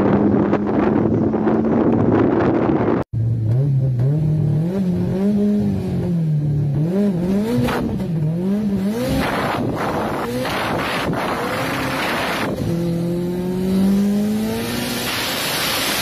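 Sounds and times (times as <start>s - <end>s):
wind on microphone: 0.0s - 3.1s, 9.0s - 13.1s
car engine revving: 0.0s - 16.0s.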